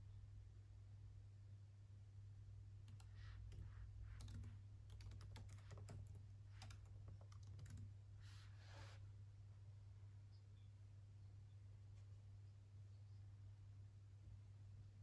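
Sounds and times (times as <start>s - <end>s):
typing on keyboard: 2.8s - 8.0s.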